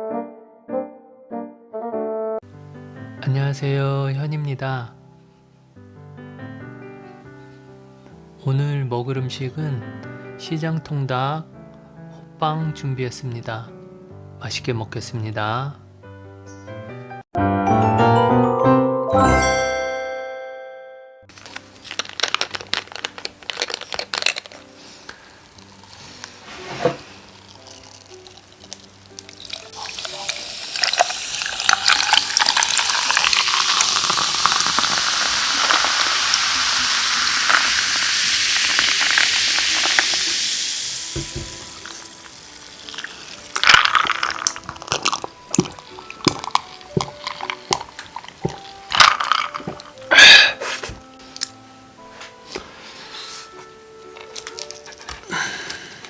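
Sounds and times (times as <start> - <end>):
liquid poured into a glass: 27.4 - 49.8.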